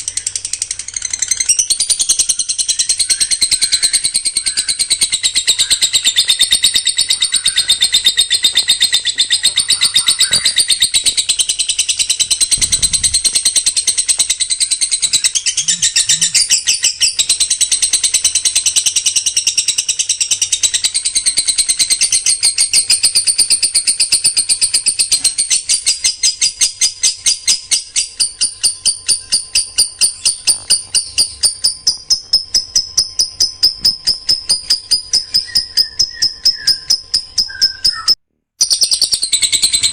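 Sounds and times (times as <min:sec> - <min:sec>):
songbird singing shrill high notes: 0:00.0 - 0:17.4, 0:27.8 - 0:39.9.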